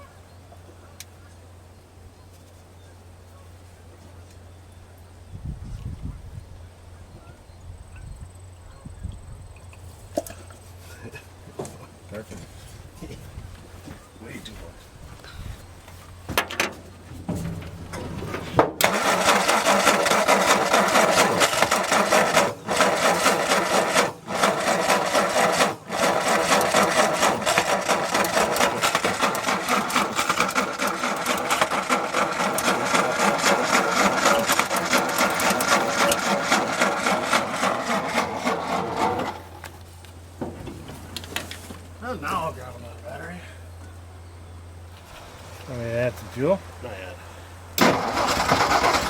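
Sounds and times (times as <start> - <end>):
engine cranking on starter: 16.4 - 39.8, 47.8 - 49.0.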